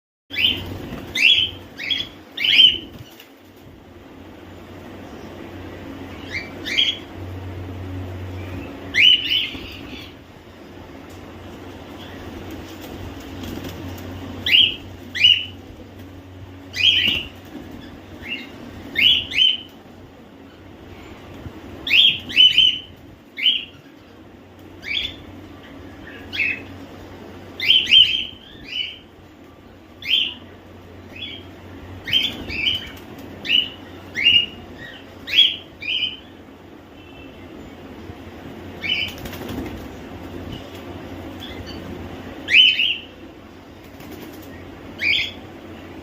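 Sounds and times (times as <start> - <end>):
low steady hum: 0.3 - 46.0
cockatiels chirping: 8.9 - 10.2, 32.0 - 36.3.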